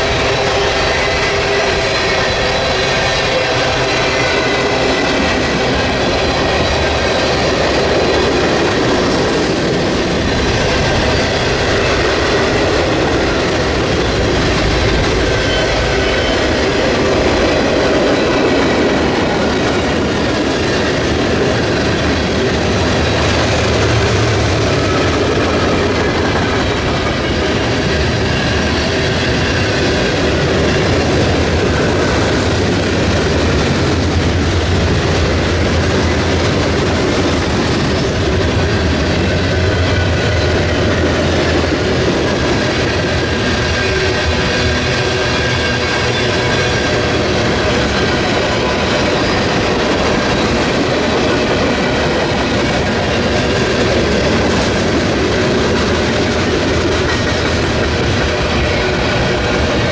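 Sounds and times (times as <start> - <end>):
freight train cars rumbling: 0.0 - 59.9.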